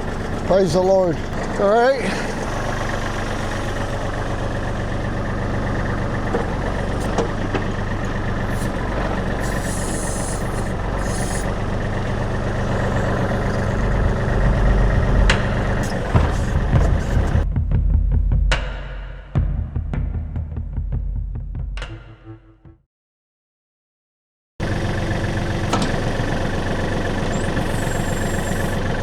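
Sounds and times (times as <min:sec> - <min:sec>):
diesel engine idling: 0:00.0 - 0:17.5, 0:24.6 - 0:29.0
brief hissing: 0:09.4 - 0:11.7, 0:27.3 - 0:28.9.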